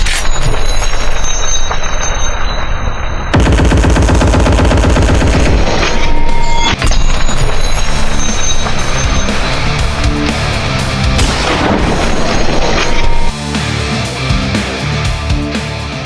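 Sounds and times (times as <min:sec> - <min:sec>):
rapid automatic gunfire: 0:03.4 - 0:09.8.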